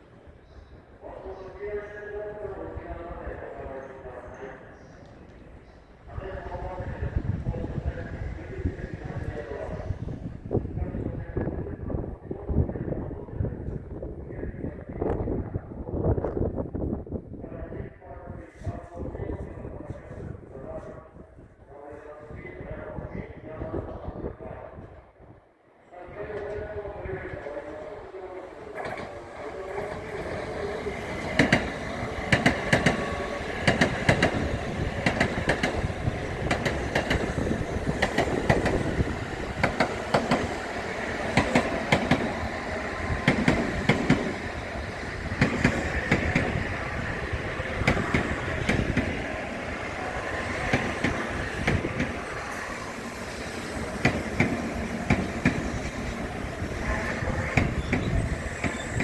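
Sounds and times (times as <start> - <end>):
rail rumble: 26.2 - 59.0
train wheels clacking over rail joints: 29.8 - 44.6, 45.3 - 46.6, 47.8 - 49.2, 50.2 - 56.2, 57.1 - 59.0.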